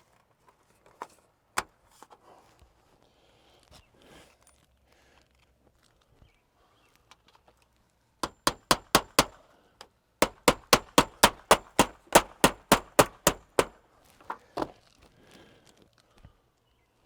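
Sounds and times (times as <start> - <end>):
hammer blows on metal: 10.2 - 13.8.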